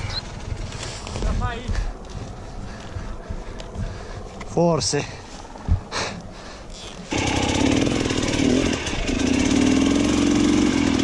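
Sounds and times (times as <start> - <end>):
dirt bike engine revving hard: 7.1 - 11.0.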